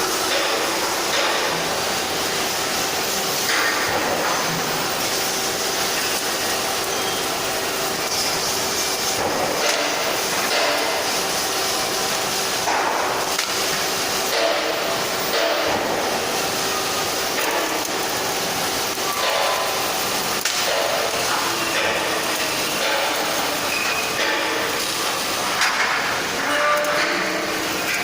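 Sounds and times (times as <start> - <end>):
machinery hiss and rumble: 0.0 - 28.0.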